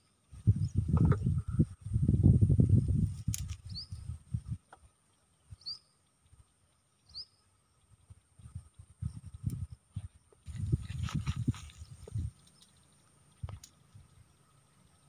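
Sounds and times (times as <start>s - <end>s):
low rumbling microphone noise: 0.3s - 4.6s, 8.0s - 12.4s
bird chirping: 3.6s - 4.1s, 5.0s - 10.4s, 11.7s - 15.0s.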